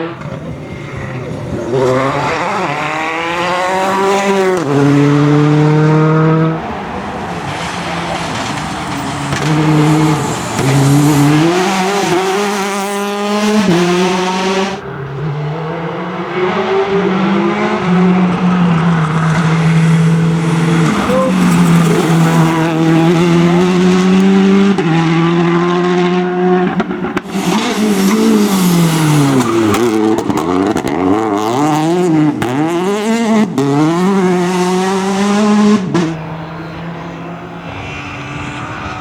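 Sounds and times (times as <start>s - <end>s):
rally car engine revving: 0.0s - 39.0s.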